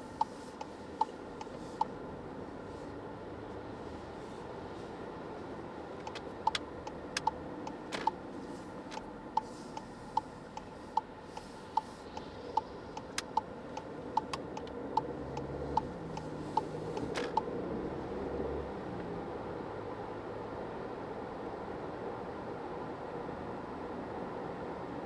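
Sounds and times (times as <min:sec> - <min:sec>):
turn signal ticking: 0:00.0 - 0:18.0
car running noise: 0:00.0 - 0:19.6
sharp clicks: 0:06.0 - 0:08.2, 0:08.9 - 0:17.4.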